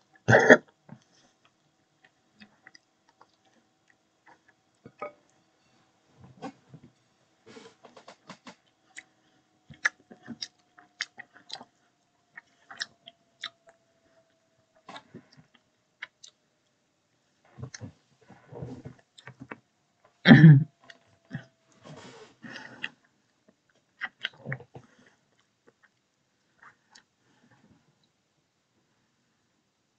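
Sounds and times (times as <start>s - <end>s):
chewing and lip-smacking: 1.4s - 4.8s, 8.6s - 13.8s, 14.8s - 16.4s, 22.5s - 26.0s.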